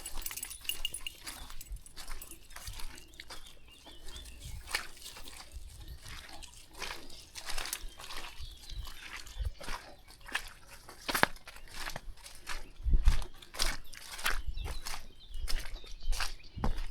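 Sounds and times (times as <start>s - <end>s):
dogs moving through foliage: 0.0s - 8.3s
footsteps crunching on dry path: 0.0s - 16.9s.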